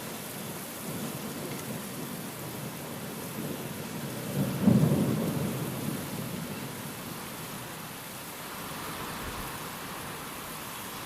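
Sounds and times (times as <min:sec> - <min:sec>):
rain hissing: 0:00.0 - 0:11.0
thunder rumbling: 0:04.2 - 0:06.5.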